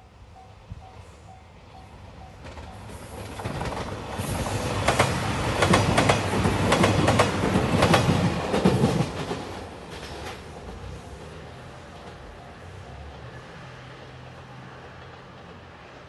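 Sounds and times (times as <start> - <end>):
train rumble: 0.0 - 16.0
train wheels clacking over rail joints: 2.4 - 11.4.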